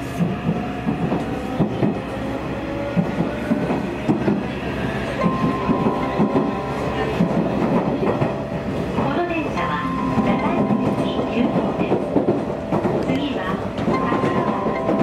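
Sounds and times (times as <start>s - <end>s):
train wheels clattering over rail joints: 10.2s - 15.0s.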